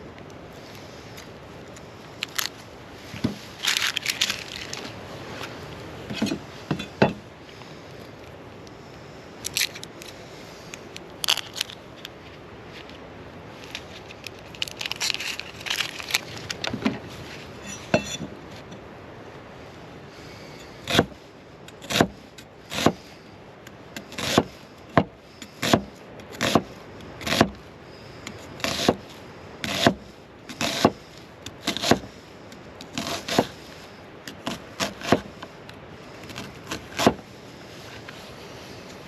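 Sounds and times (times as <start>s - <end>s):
knife chopping on wooden board: 21.8s - 23.0s, 24.2s - 24.5s, 25.6s - 26.6s, 27.2s - 27.6s, 28.6s - 29.0s, 29.7s - 30.0s, 30.6s - 31.0s, 31.7s - 32.1s, 34.5s - 35.3s, 36.7s - 37.2s.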